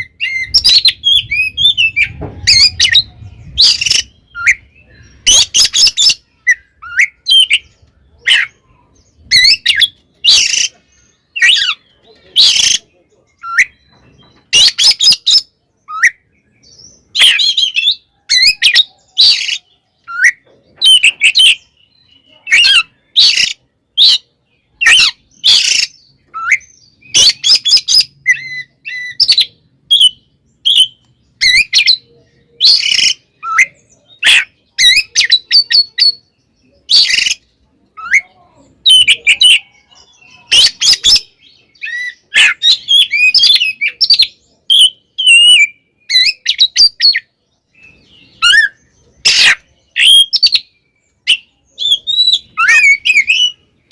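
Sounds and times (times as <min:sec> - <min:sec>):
songbird singing harsh rapid phrases: 0:00.0 - 0:53.9.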